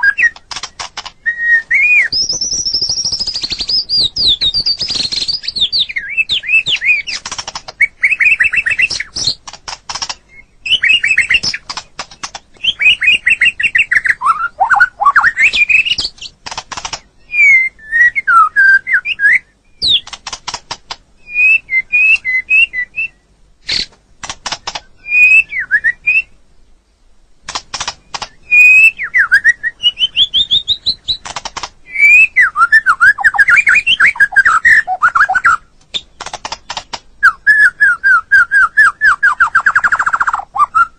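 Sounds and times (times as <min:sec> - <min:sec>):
bird whistling and warbling: 0:00.0 - 0:20.2, 0:21.2 - 0:24.0, 0:24.8 - 0:26.4, 0:28.0 - 0:40.9
bird dry clicks: 0:00.2 - 0:01.4, 0:02.1 - 0:05.6, 0:06.4 - 0:14.0, 0:15.5 - 0:17.1, 0:19.8 - 0:21.1, 0:23.7 - 0:24.9, 0:27.4 - 0:28.4, 0:31.0 - 0:31.8, 0:35.4 - 0:37.1.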